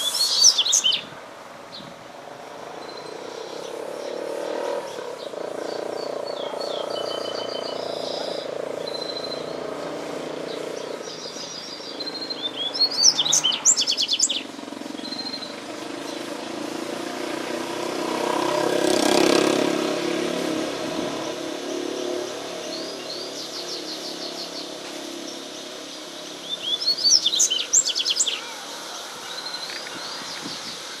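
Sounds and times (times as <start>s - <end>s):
bird high chirping song: 0.0s - 1.1s, 2.8s - 16.6s, 20.4s - 31.0s
broad rushing noise: 0.0s - 31.0s.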